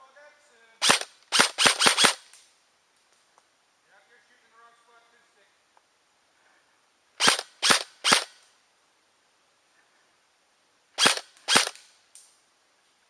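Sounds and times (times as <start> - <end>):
airsoft gun firing: 0.8 - 2.3, 7.2 - 8.4, 11.0 - 11.8.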